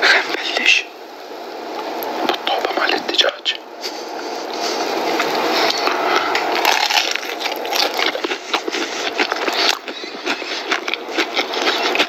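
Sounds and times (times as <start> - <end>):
crunching and chewing fried chicken: 4.1 - 12.0.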